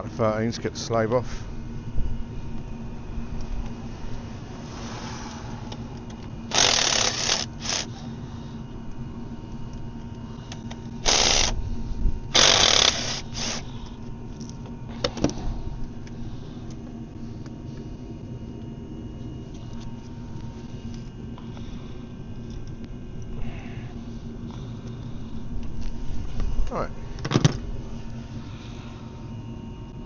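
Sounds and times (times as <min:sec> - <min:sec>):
ratchet wrench clicking: 0:06.5 - 0:07.9, 0:12.4 - 0:13.6.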